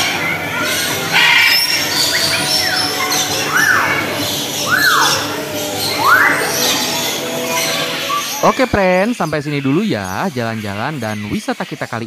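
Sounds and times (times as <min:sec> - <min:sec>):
parrot squawk: 0:00.0 - 0:08.8
birds calling: 0:00.0 - 0:12.0
rising-and-falling bird call: 0:00.4 - 0:08.5.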